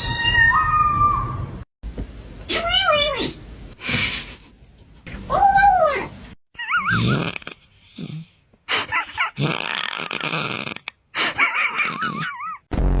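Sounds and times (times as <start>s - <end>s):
cat yowling: 0.0s - 1.4s, 5.3s - 7.0s.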